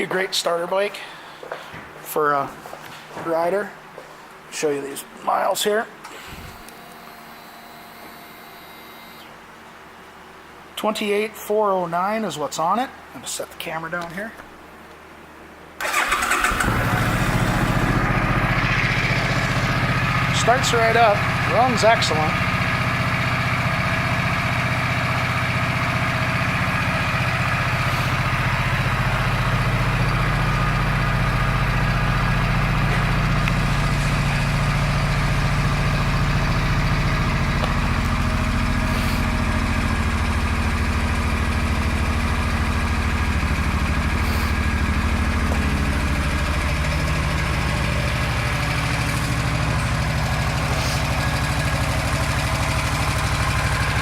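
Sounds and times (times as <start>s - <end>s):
motorcycle engine idling: 15.8s - 54.0s.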